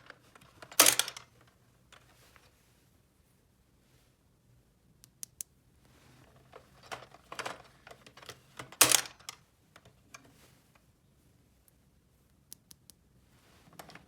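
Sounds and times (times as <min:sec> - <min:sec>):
small objects clicking and rustling: 0:00.0 - 0:02.1.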